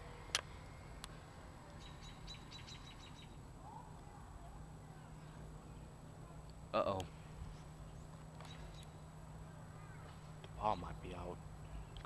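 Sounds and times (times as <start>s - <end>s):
bird chirping: 1.7s - 3.9s, 7.1s - 12.0s.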